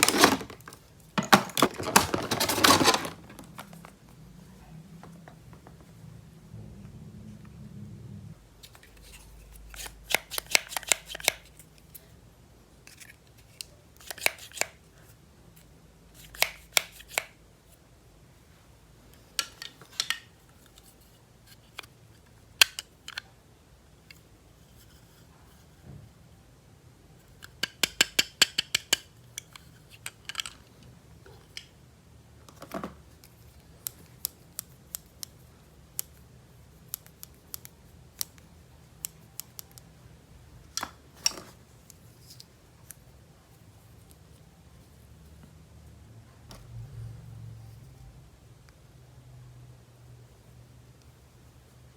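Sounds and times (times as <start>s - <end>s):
plastic clicks and snips: 9.7s - 11.6s, 36.8s - 39.9s.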